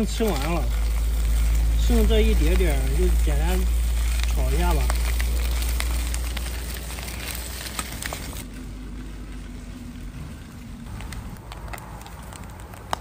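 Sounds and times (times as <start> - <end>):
food sizzling in a wok: 0.0 - 8.4
low rumble: 0.0 - 13.0.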